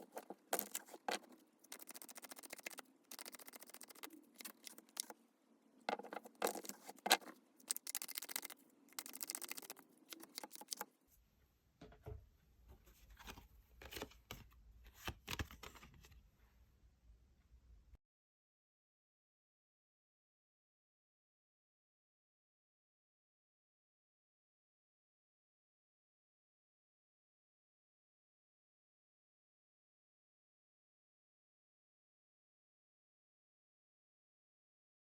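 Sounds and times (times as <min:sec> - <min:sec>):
cards shuffling: 0:00.0 - 0:05.2, 0:05.9 - 0:10.9, 0:13.2 - 0:16.0.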